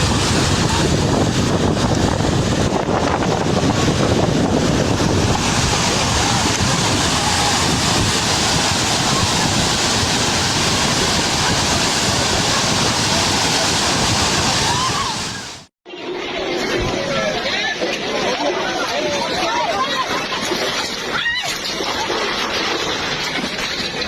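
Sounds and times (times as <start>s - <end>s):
wind buffeting microphone: 0.0s - 15.6s
storm roaring: 0.0s - 15.7s.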